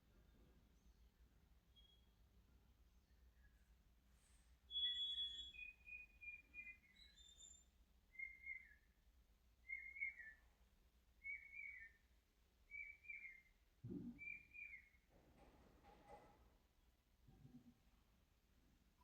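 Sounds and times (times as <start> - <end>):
faint bird chirping: 0.0 - 15.1.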